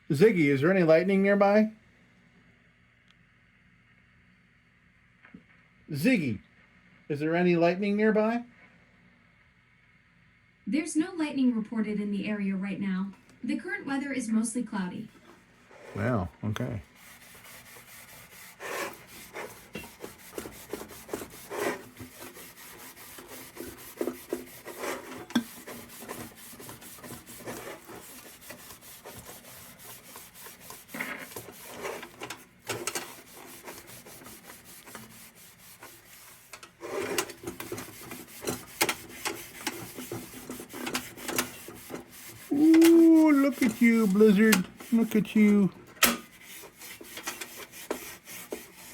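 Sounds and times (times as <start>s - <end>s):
steel wool scrubbing metal: 16.9s - 48.9s.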